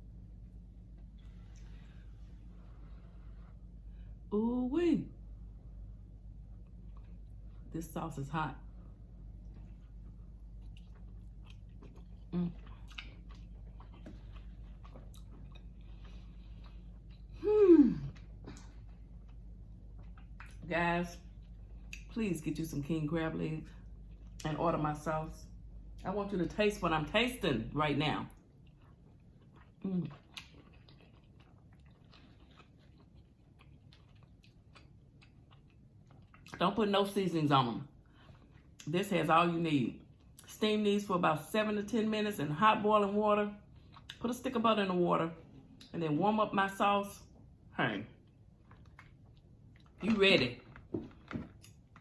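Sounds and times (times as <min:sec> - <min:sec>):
person chewing: 0:06.5 - 0:07.7, 0:09.1 - 0:20.6, 0:21.2 - 0:22.1, 0:28.3 - 0:36.6, 0:43.7 - 0:44.2, 0:48.2 - 0:50.1
person humming mm: 0:17.4 - 0:18.2.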